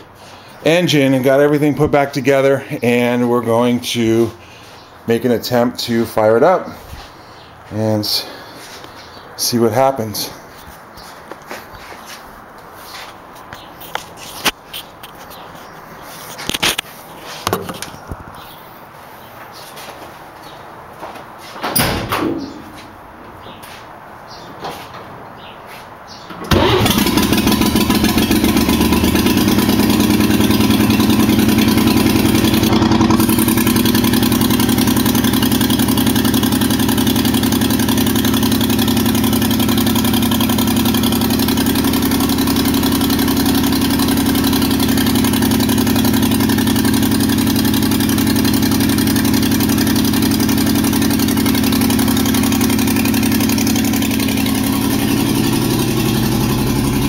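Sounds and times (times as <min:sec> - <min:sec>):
engine starting and running: 0:26.1 - 0:57.0.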